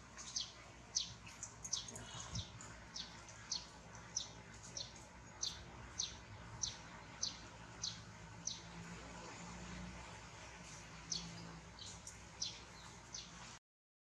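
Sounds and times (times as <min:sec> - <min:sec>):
bird chirping high downward notes: 0:11.0 - 0:13.3.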